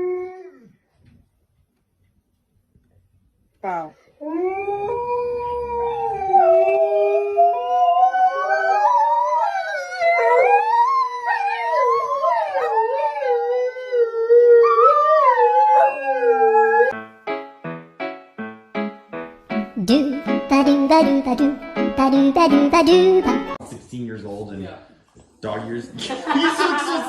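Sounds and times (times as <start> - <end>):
dog howling: 4.2 - 17.0.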